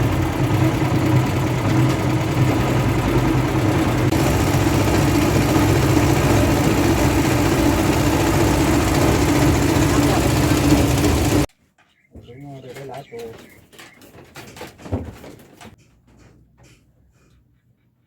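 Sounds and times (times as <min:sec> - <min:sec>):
engine humming steadily: 0:00.0 - 0:11.5.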